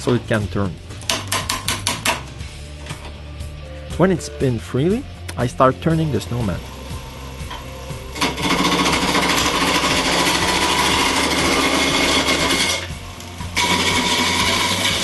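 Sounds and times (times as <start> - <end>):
lathe motor humming: 5.9 - 15.0
gouge scraping wood on lathe: 8.1 - 15.0.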